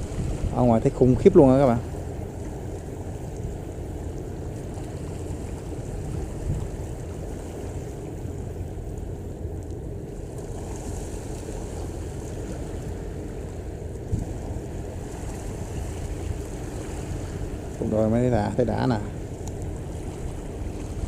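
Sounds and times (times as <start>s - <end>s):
ship engine rumble: 0.0s - 21.0s
water wash from ship: 0.0s - 21.0s.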